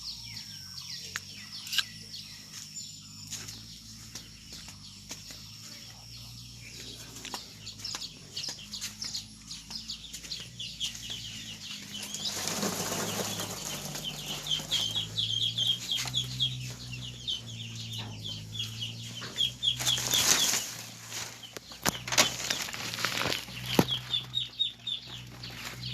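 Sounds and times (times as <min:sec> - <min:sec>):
chickens calling: 0:00.0 - 0:25.9
wings flapping: 0:11.8 - 0:15.3, 0:19.7 - 0:24.4.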